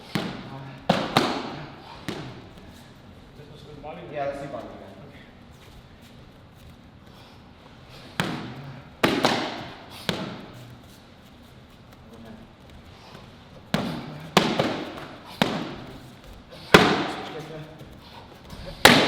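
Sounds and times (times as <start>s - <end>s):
strikes slapping kicking paddles: 0.0s - 2.7s, 8.0s - 10.8s, 13.5s - 19.0s.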